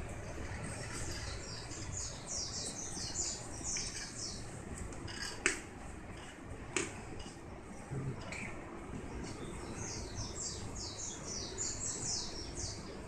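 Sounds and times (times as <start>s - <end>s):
bird chirping: 0.2s - 4.5s, 8.3s - 13.0s.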